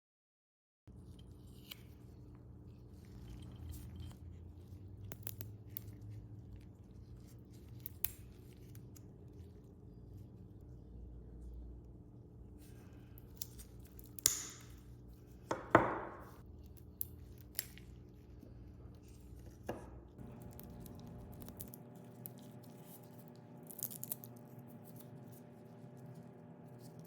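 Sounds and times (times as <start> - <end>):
tools knocking and clinking on bench: 15.5 - 16.3.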